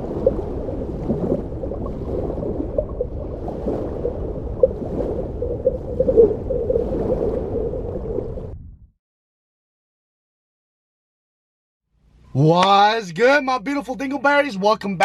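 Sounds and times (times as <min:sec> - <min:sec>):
water gurgling and bubbling: 0:00.0 - 0:08.8.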